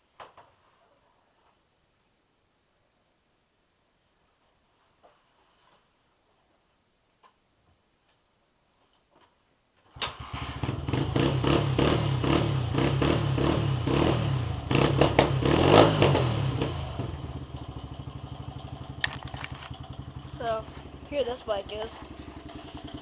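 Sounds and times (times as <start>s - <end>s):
dirt bike engine starting and idling: 9.9s - 23.0s
engine revving: 10.0s - 23.0s.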